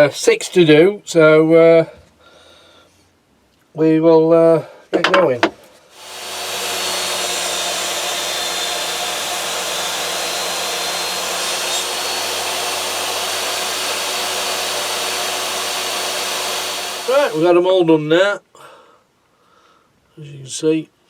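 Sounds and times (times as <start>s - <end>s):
table saw motor running: 5.9s - 17.5s.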